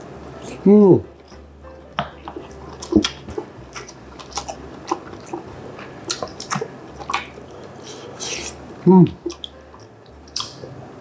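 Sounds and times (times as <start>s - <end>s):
wet mouth sounds: 2.0s - 10.8s
chewing and crunching food: 2.0s - 11.0s.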